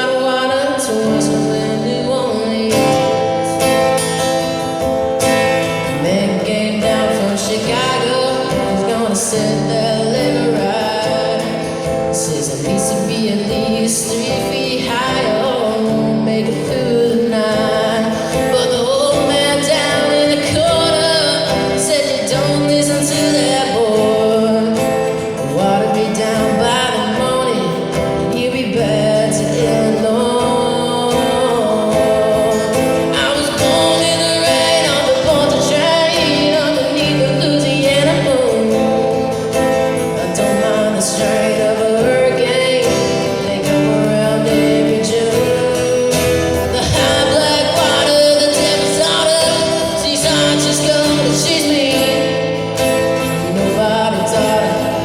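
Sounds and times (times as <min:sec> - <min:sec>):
acoustic guitar strumming: 0:00.0 - 0:55.0
person singing: 0:00.0 - 0:55.0.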